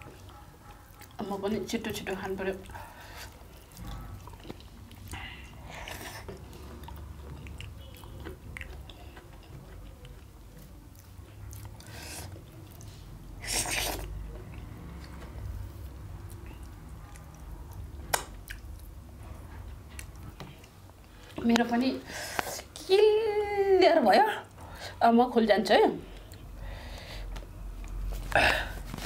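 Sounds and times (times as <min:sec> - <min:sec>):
person chewing food: 0:00.0 - 0:01.2, 0:02.5 - 0:21.6.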